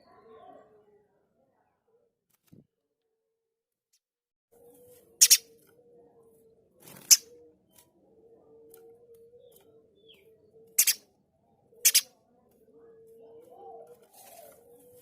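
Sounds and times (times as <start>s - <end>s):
bird harsh high-pitched calls: 4.8s - 5.6s, 6.9s - 7.4s, 9.4s - 11.1s, 11.8s - 12.2s.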